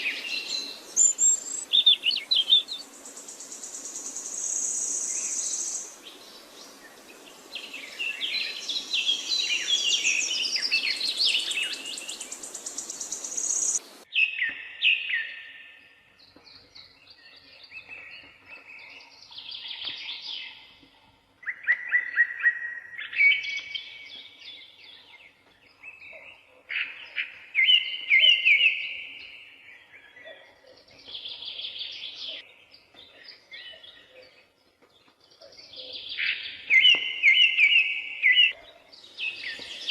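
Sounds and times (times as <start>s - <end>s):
steady high hiss: 0.0s - 14.1s
small songbirds singing: 0.0s - 39.9s.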